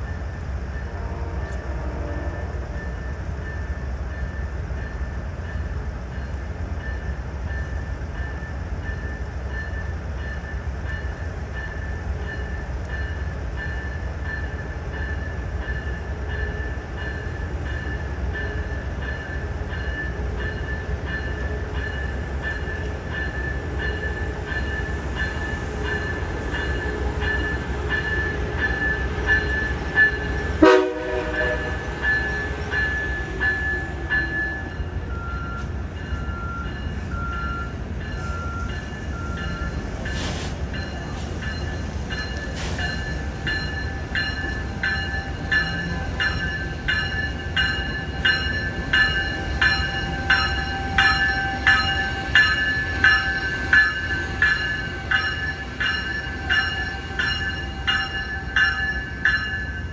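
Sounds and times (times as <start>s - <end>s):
train bell ringing: 0.0s - 59.9s
train rumble: 0.0s - 59.9s
short train horn blip: 0.9s - 2.6s, 30.6s - 31.8s.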